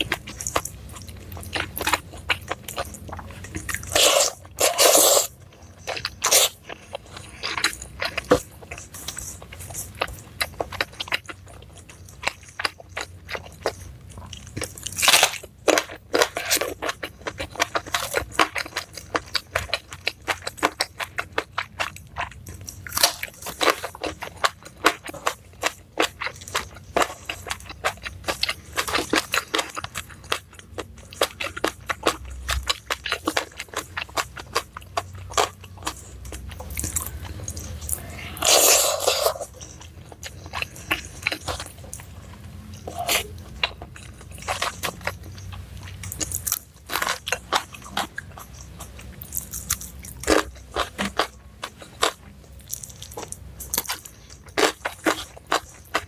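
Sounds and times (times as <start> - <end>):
person chewing crisp vegetables: 0.0 - 56.0.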